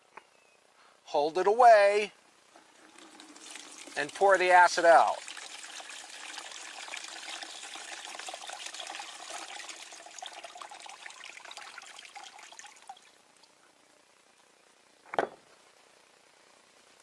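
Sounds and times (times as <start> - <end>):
liquid pouring and splashing: 2.6 - 13.2.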